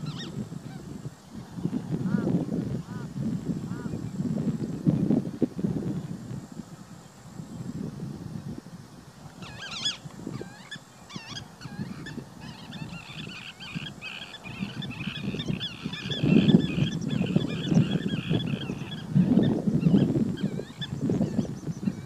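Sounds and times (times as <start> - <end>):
high wavering bird calls: 0.0 - 0.8, 9.4 - 22.0.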